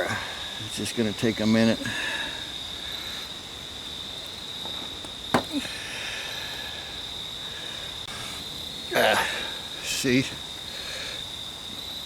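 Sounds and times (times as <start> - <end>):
sharp knock: 4.8 - 5.6.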